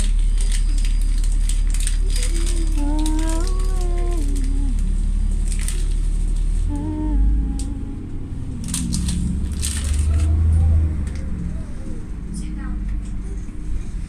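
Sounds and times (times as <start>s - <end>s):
steady low rumble: 0.0s - 14.0s
person humming with falling pitch: 2.0s - 5.6s, 6.6s - 9.5s.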